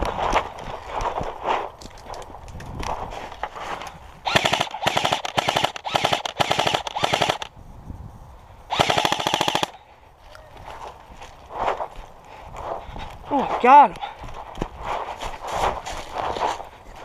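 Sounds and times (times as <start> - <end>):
airsoft rifle firing bursts: 4.2 - 7.5, 8.7 - 9.8.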